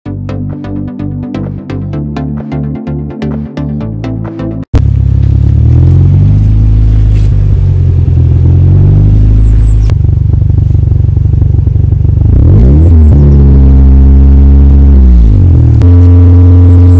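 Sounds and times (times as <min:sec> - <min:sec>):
car engine with deep exhaust: 0:04.8 - 0:16.9.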